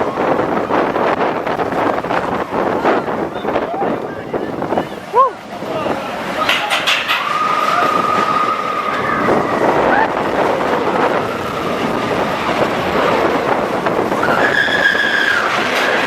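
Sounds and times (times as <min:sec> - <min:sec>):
rolling track noise: 0:00.0 - 0:16.0
rush of wind: 0:00.0 - 0:16.0
high squeal: 0:06.4 - 0:10.1, 0:14.2 - 0:16.0.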